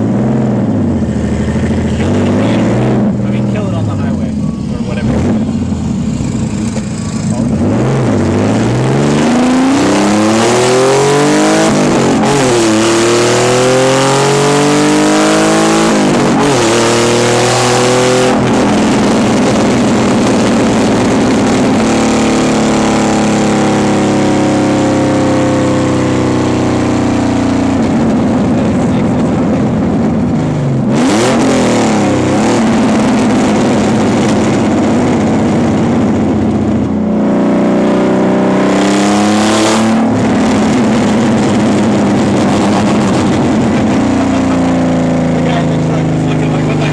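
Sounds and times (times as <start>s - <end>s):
car engine accelerating through gears: 0.0s - 46.9s.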